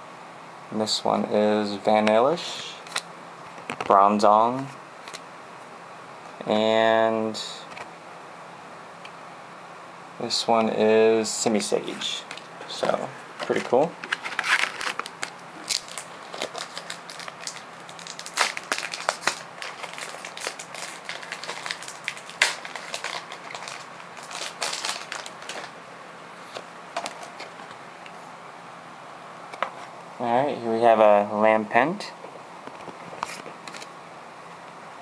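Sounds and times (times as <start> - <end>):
wrapper tearing and crinkling: 14.1 - 25.7.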